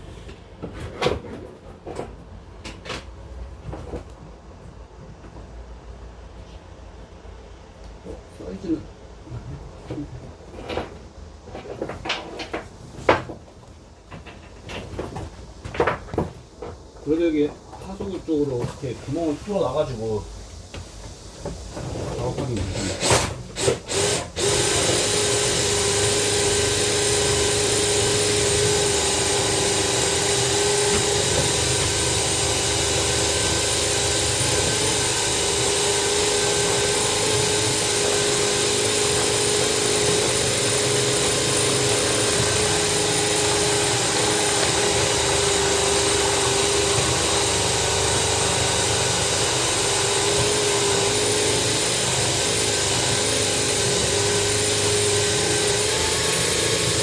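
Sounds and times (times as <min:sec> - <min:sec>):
drain-cleaning machine motor running: 0:22.2 - 0:57.0.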